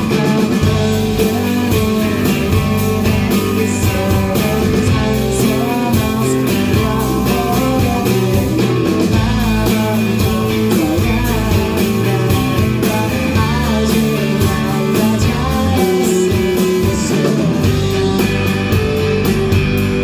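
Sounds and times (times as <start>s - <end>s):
live rock band playing: 0.0s - 20.0s
sliding guitar melody: 0.0s - 20.0s.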